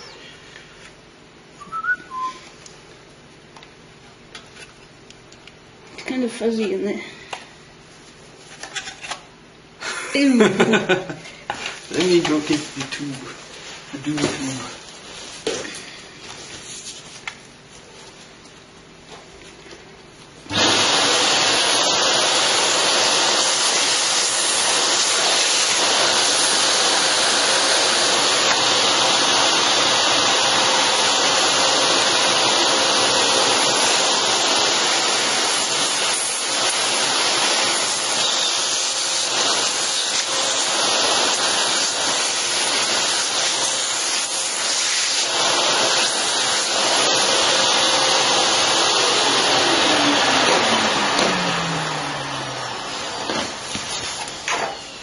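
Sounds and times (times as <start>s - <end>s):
rushing air from cleaning tool: 32.4s - 51.1s.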